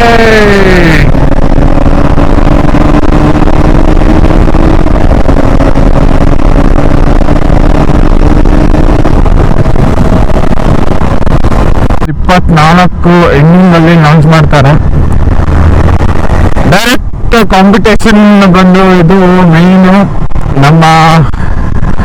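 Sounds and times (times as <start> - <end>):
motorcycle engine pulling steadily: 0.0 - 22.0
wind rumble on microphone: 0.0 - 22.0.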